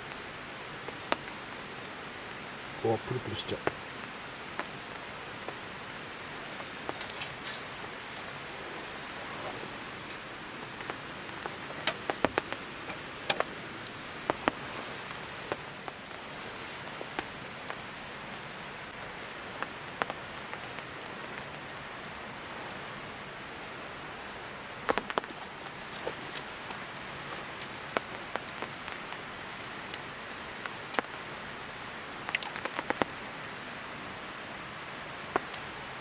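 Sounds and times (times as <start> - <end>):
sharp pops and spatters: 6.3 - 17.3.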